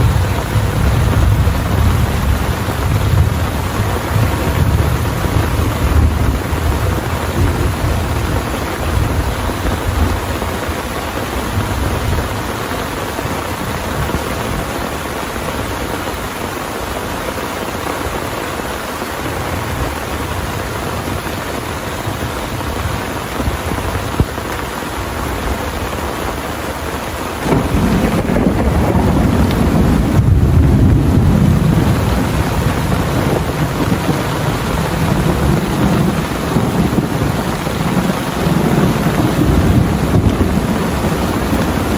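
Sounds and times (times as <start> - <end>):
thunder rumbling: 0.0 - 15.8, 27.4 - 41.9
heavy rain pouring: 0.0 - 41.9.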